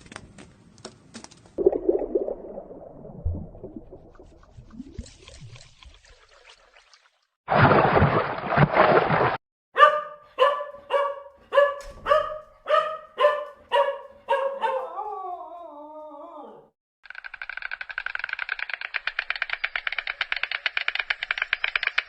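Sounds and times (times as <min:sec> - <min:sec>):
dog barking: 0:09.8 - 0:15.1.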